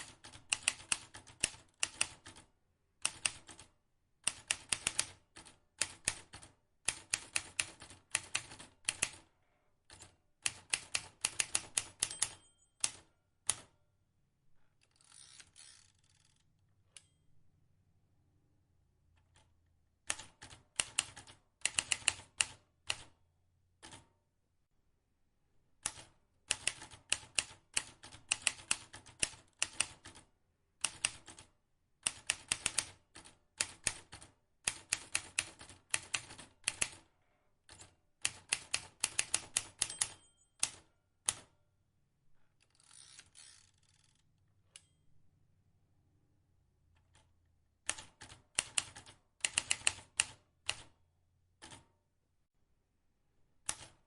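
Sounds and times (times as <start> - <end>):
manual typewriter keys clicking: 9.9 - 13.7, 30.8 - 37.0, 37.7 - 41.5, 47.8 - 50.9, 53.6 - 54.0.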